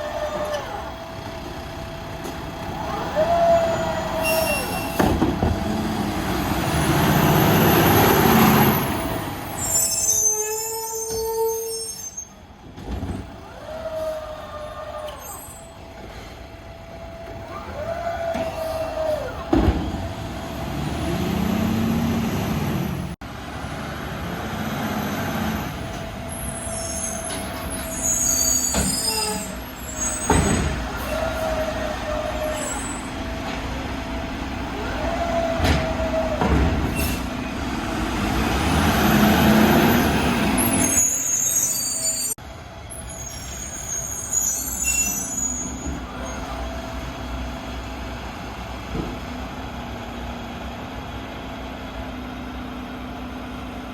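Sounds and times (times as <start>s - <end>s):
diesel engine running: 0.0s - 9.7s.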